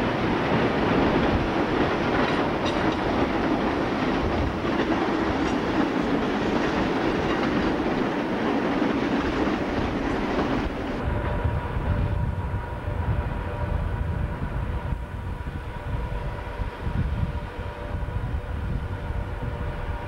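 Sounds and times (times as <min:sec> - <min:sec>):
train wheels over rail joints: 0:00.0 - 0:12.3.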